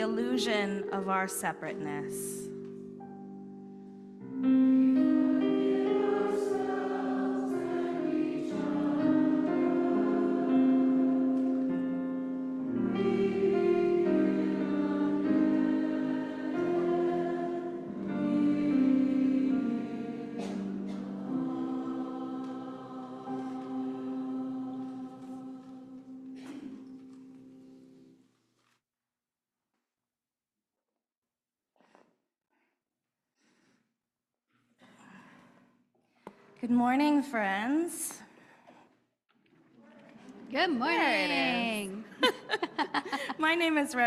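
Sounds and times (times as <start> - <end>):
group singing a slow hymn: 4.5 - 27.7.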